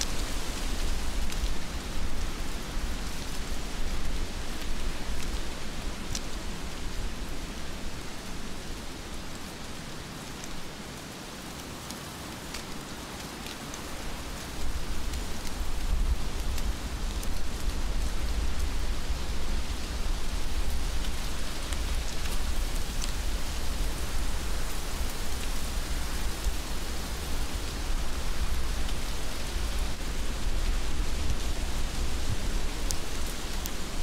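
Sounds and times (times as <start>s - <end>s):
heavy rain hissing: 0.0s - 34.0s
raindrop ticks: 11.8s - 18.9s, 19.5s - 26.6s, 27.3s - 34.0s.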